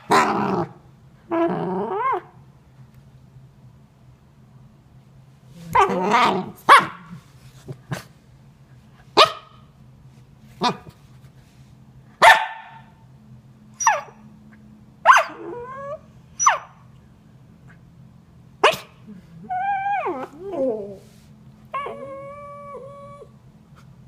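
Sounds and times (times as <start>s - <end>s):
puppy whining: 1.3s - 2.4s, 13.8s - 14.2s, 15.1s - 16.8s, 19.1s - 23.4s
puppy barking: 6.7s - 7.2s, 9.2s - 9.6s, 12.2s - 12.9s, 13.8s - 14.2s, 15.0s - 15.6s, 16.4s - 16.8s, 18.6s - 19.0s.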